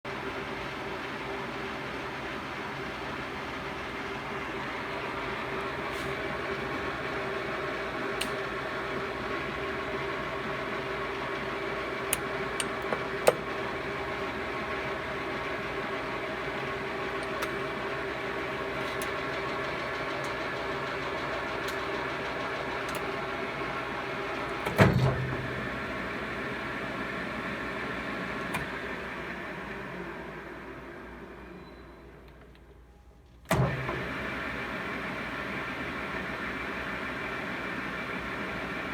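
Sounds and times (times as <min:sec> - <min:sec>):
lathe running: 0:00.2 - 0:31.2
heavy mechanical clunk: 0:24.5 - 0:25.5.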